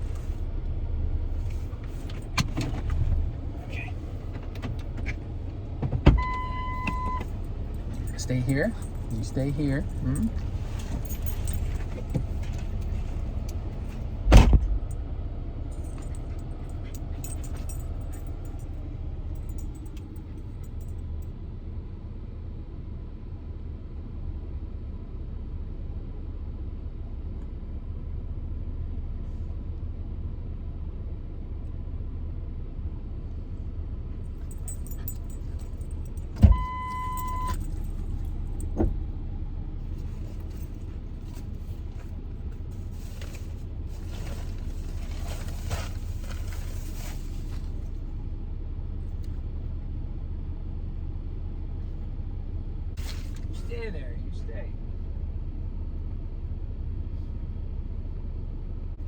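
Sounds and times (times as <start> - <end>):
vehicle engine idling: 0.0 - 59.0
beep: 6.2 - 7.3, 36.5 - 37.6
thump: 14.2 - 14.8.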